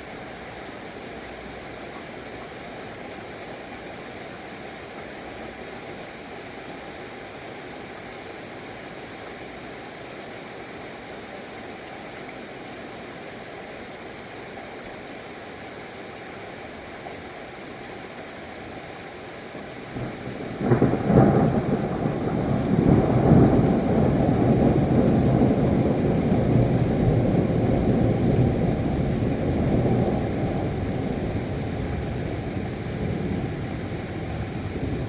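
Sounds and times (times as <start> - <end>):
low thunder rumbling: 19.9 - 35.0.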